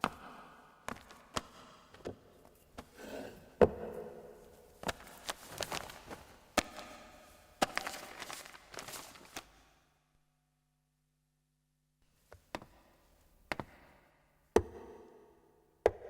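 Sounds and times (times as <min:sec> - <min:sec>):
soft rustling: 0:04.4 - 0:06.5.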